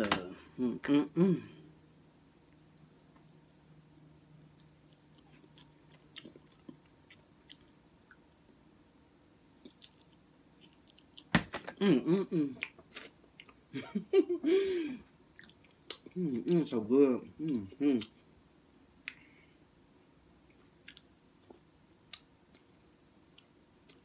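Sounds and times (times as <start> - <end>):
person chewing food: 4.5 - 8.5, 9.6 - 11.3, 12.4 - 13.7, 15.0 - 16.6, 19.0 - 19.5, 20.4 - 24.0
wet mouth clicks: 19.0 - 19.2.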